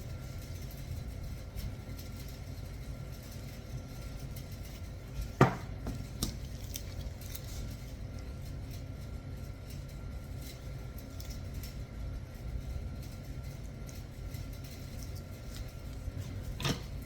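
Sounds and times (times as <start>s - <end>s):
kitchen utensil knocking: 5.4s - 6.0s.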